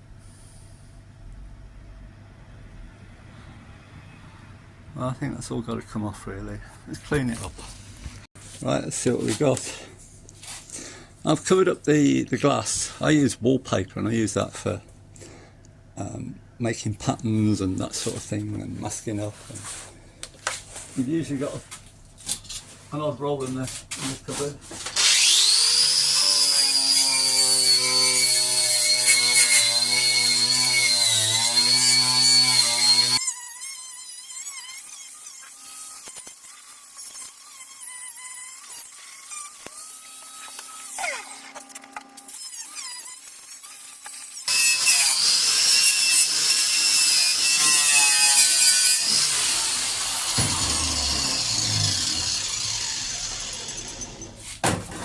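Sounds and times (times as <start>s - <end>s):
power tool high whine: 25.0s - 54.4s
low thump: 50.4s - 52.5s.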